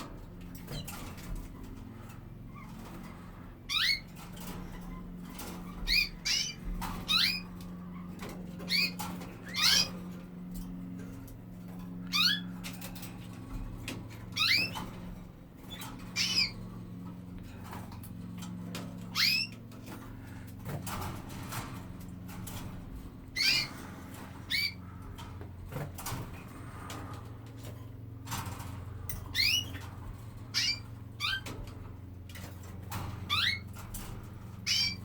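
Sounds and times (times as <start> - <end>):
steady low hum: 0.0 - 35.0
canaries rising call notes: 2.3 - 11.0, 12.0 - 12.7, 13.9 - 17.1, 18.8 - 20.3, 20.9 - 27.4, 28.4 - 35.0.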